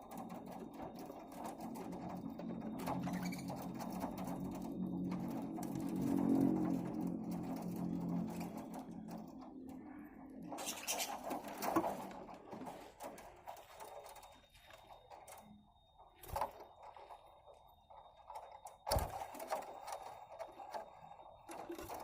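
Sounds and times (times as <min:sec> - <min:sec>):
birds cracking seeds: 0:10.3 - 0:14.8.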